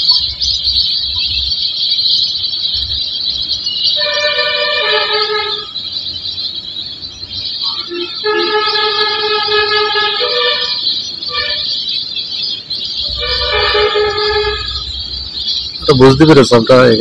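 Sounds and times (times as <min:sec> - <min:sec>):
high-pitched hiss: 0:00.0 - 0:17.0
two-pitch horn blasts: 0:04.0 - 0:05.8, 0:07.6 - 0:11.7, 0:13.1 - 0:15.0.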